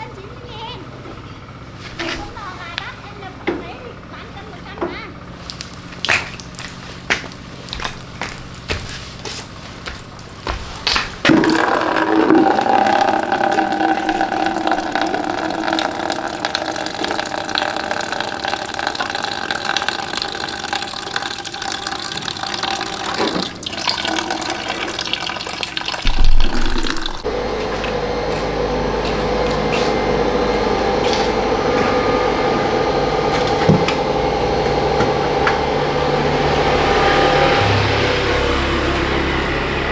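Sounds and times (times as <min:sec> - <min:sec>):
water filling a container: 0:05.3 - 0:28.0.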